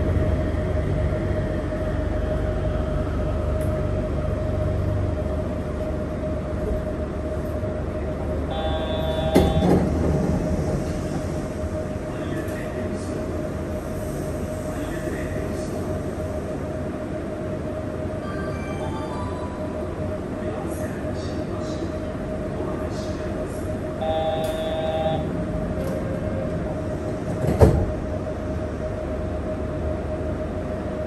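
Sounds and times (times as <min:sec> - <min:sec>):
train cabin whine and rumble: 0:00.0 - 0:31.0
short tone with click: 0:24.1 - 0:25.2.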